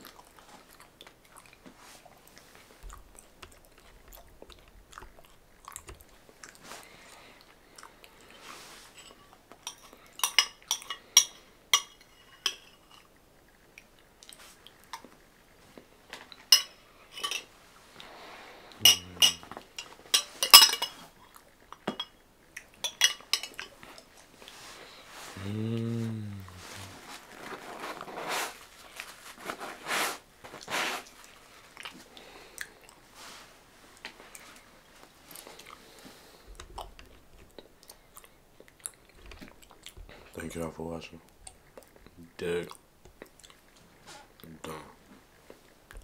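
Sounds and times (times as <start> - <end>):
chewing and smacking: 0.0 - 8.5, 13.0 - 16.5, 21.0 - 25.0, 31.1 - 33.1, 33.9 - 40.4, 41.3 - 44.5.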